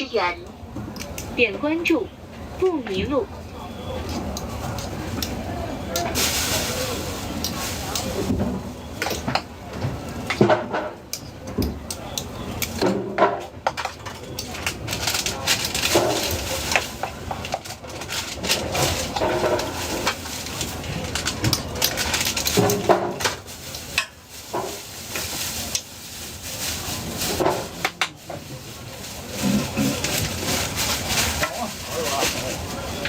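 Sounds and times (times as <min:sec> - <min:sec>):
background voices: 0:22.9 - 0:33.0.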